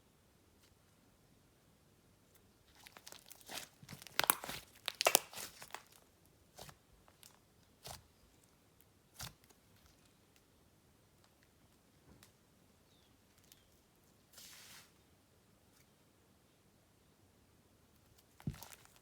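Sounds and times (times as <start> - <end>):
slime squished by hand crackling: 2.7 - 8.1.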